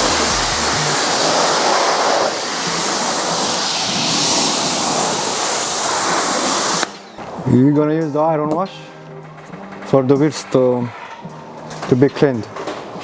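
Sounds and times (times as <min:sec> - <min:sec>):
pressure washer jet hissing: 0:00.0 - 0:06.8.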